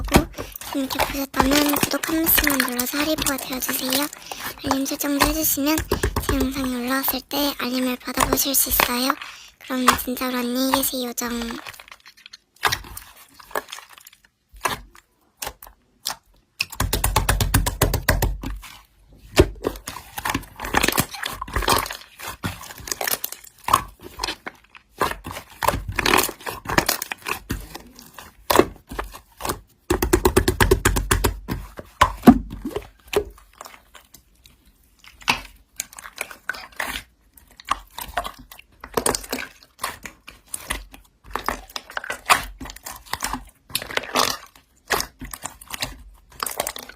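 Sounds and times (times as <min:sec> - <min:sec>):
slime squishing: 0:00.0 - 0:46.9
slime crackling and popping: 0:19.5 - 0:31.4, 0:32.1 - 0:46.9.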